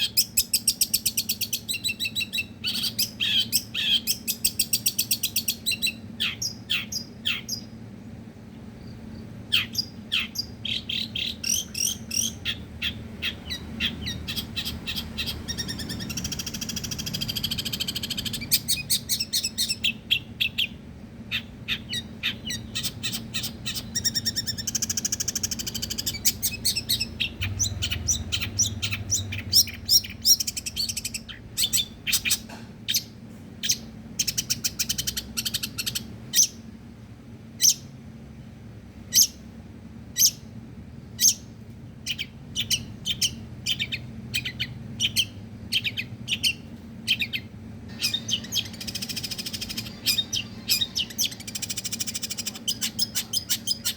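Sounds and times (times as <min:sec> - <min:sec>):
bird singing rapid high notes: 0:09.5 - 0:36.6, 0:41.2 - 0:53.9.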